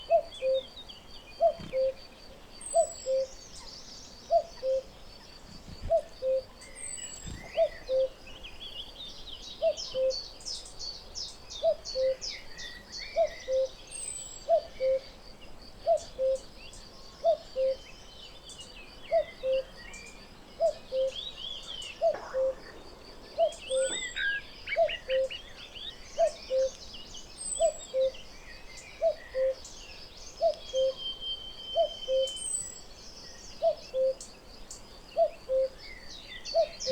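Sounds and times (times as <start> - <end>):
small birds chirping and trilling: 6.8 - 9.4, 18.1 - 36.9
cuckoo calling: 20.6 - 26.8, 27.5 - 28.2, 29.0 - 29.7, 30.4 - 32.6.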